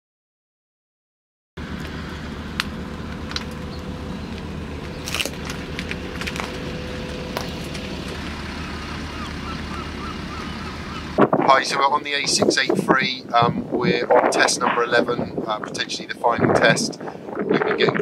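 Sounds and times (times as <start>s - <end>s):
car engine idling: 1.6s - 12.3s
sharp clicks and rattles: 1.8s - 8.4s.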